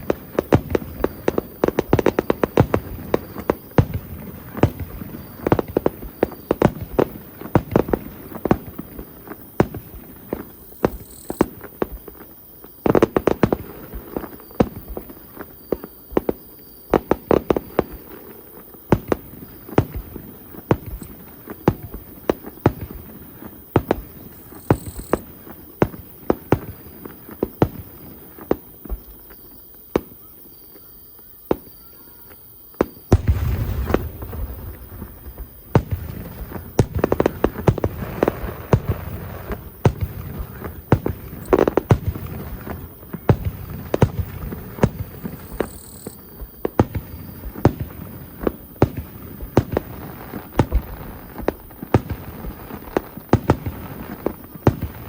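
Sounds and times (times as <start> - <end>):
fireworks crackling bangs: 0.0 - 30.5, 31.2 - 55.0
deep firework boom: 33.1 - 45.6.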